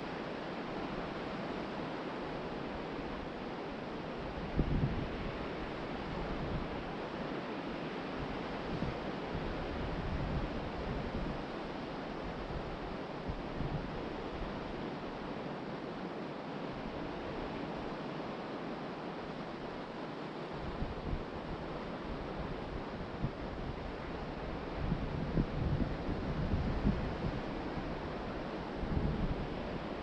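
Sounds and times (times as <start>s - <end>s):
ocean surf washing onto beach: 0.1s - 30.0s
wind buffeting microphone: 4.4s - 5.5s, 20.6s - 30.0s.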